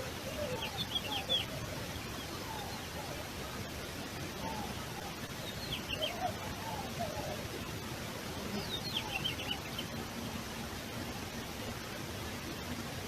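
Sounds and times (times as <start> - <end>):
lower wavering bird calls: 0.0 - 3.6, 4.3 - 7.7, 8.4 - 10.5
background hiss: 0.0 - 13.0.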